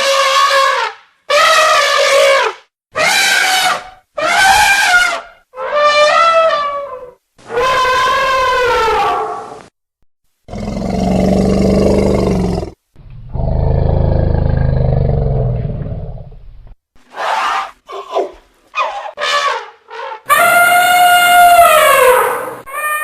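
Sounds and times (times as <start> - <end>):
elephant trumpeting: 0.0 - 9.6, 18.8 - 23.0
elephant squeals: 0.1 - 9.5, 18.8 - 23.0
elephant low roars: 10.5 - 16.4.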